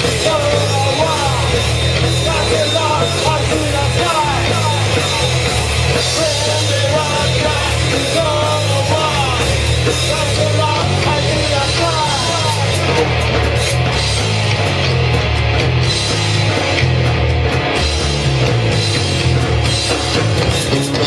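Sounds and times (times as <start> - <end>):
person singing: 0.0 - 12.9
live rock band playing: 0.0 - 21.0.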